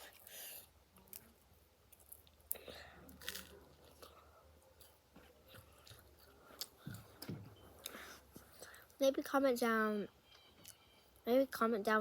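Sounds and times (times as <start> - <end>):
chewing crunchy toast: 0.0 - 7.1.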